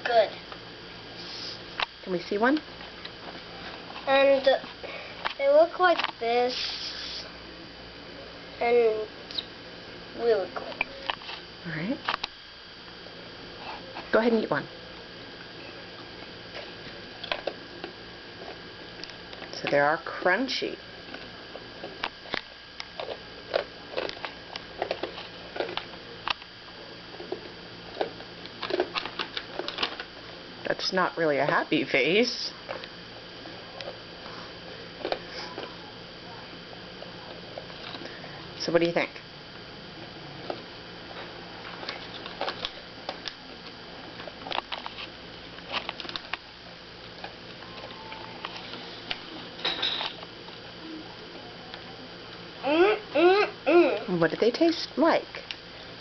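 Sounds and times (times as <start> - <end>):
child chewing crunchy snack: 16.5 - 18.6, 21.1 - 25.9, 27.1 - 30.0, 35.0 - 35.7.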